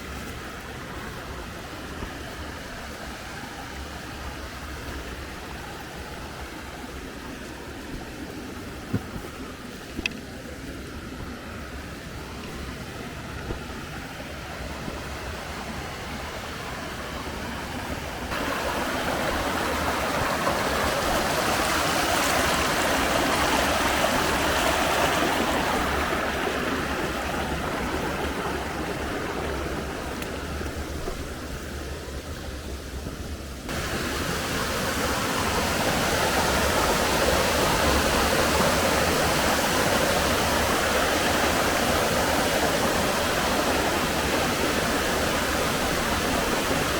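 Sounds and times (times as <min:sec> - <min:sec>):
stream water rushing: 0:00.0 - 0:46.9
waterfall: 0:00.0 - 0:46.9.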